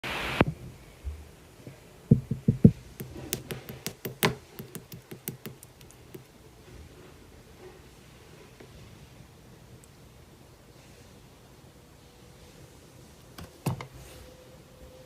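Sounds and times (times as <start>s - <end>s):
dull thumps: 2.1s - 6.3s.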